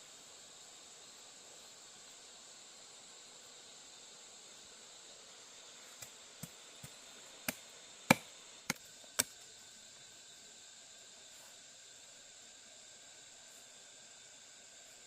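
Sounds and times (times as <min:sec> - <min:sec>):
sharp chopping strikes: 0:06.4 - 0:09.3.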